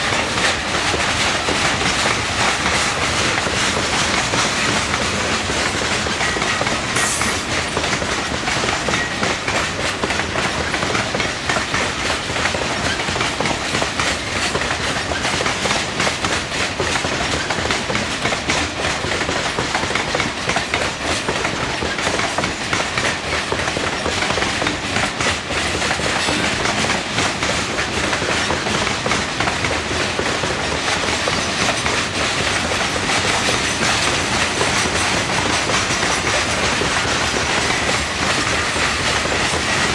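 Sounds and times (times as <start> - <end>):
train cars rumbling past: 0.0 - 18.8
wheels clicking over rail joints: 0.0 - 39.9.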